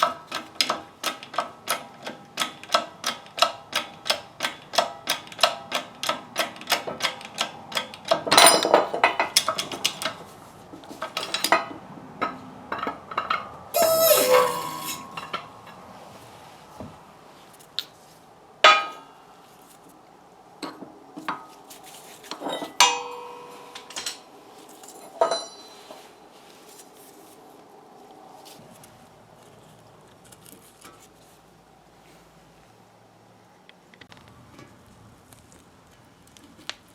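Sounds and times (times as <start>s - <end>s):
metallic clinks and knocks: 12.8s - 15.8s
metal scrape: 13.8s - 16.3s.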